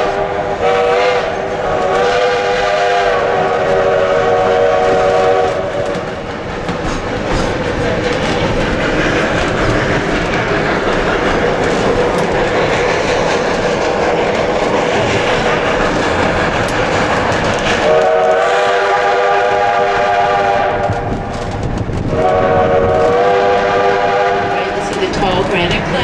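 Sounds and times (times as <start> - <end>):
steam whistle blast: 0.0 - 5.6, 17.8 - 21.0, 22.2 - 24.9
train rumbling along track: 0.0 - 26.0.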